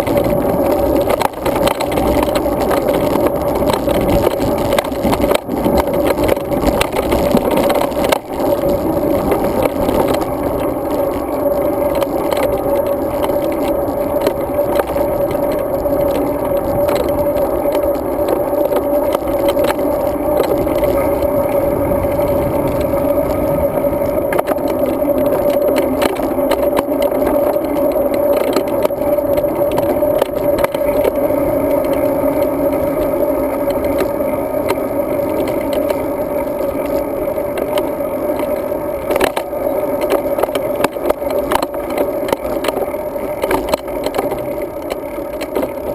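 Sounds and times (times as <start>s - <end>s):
bicycle road noise: 0.0s - 45.9s.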